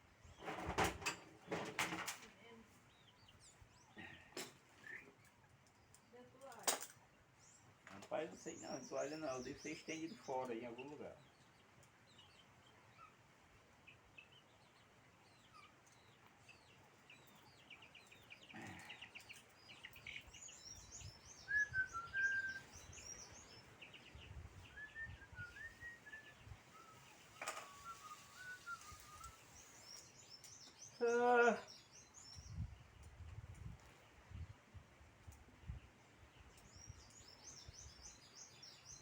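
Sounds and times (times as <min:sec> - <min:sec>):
small birds chirping: 0:00.0 - 0:39.0
whistled bird phrase: 0:21.2 - 0:23.3, 0:24.6 - 0:29.8.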